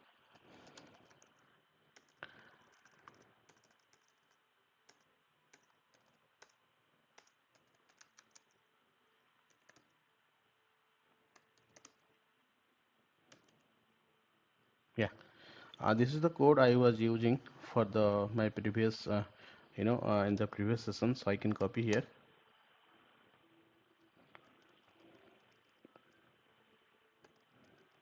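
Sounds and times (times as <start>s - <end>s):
faint keyboard typing: 0.0s - 10.2s, 11.1s - 12.3s, 13.2s - 13.8s, 19.8s - 22.2s, 23.3s - 28.0s.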